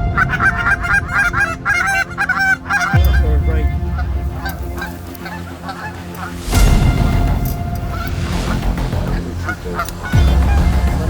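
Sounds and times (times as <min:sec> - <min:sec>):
geese honking: 0:00.0 - 0:11.0
low rumble: 0:02.9 - 0:11.0.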